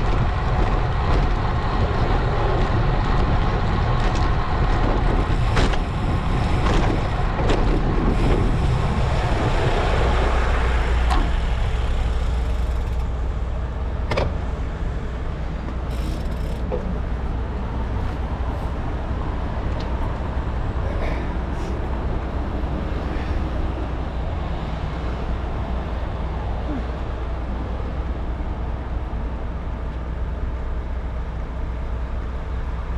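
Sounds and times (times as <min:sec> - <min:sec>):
wind on microphone: 0:00.0 - 0:13.4
bike tyre noise: 0:15.7 - 0:17.0, 0:17.6 - 0:19.0.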